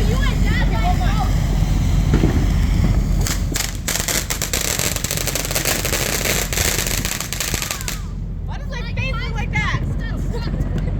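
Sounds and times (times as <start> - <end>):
firework fountain crackling: 0.0 - 8.3.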